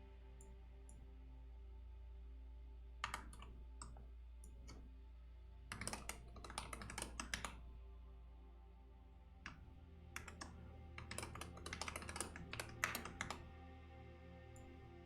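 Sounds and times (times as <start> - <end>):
faint background music: 0.0 - 15.0
typing on computer keyboard: 3.0 - 4.0, 5.7 - 7.6, 10.2 - 13.5.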